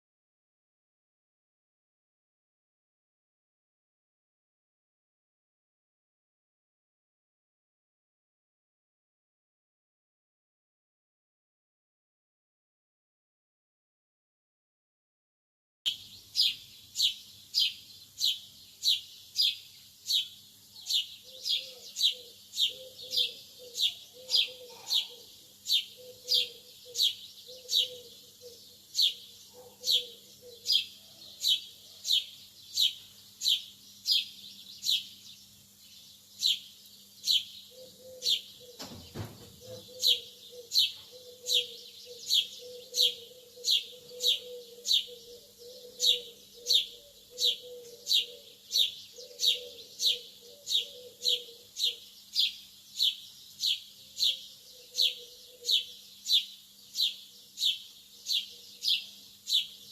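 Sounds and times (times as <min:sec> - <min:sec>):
lovebird chirping: 0:15.9 - 0:59.9.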